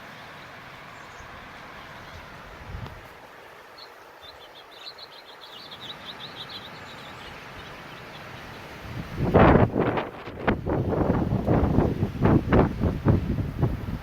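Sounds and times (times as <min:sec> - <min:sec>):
small bird twittering: 0:03.7 - 0:08.8
wind rushing: 0:08.8 - 0:14.0.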